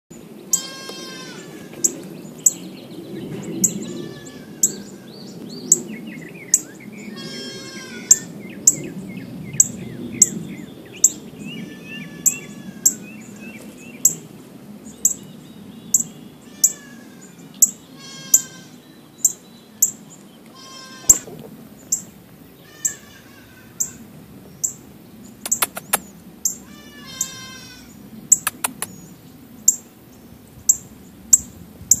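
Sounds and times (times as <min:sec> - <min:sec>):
sharp high bird chip: 0:25.5 - 0:26.1, 0:28.4 - 0:29.0.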